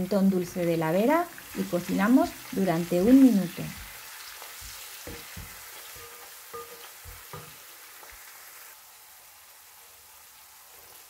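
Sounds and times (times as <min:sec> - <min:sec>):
onions sizzling in oil: 0:00.0 - 0:11.0
wooden spoon tapping and scraping: 0:03.0 - 0:08.2.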